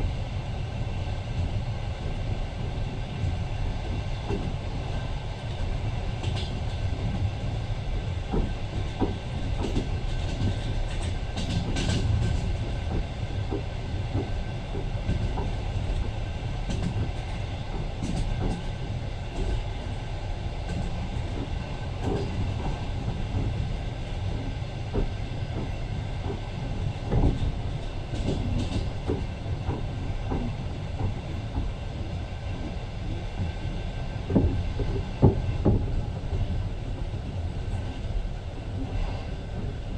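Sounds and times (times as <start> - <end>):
train wheels rumbling: 0.0 - 39.9
clacks and knocks from rails: 6.2 - 7.6, 8.2 - 19.9, 20.6 - 38.2.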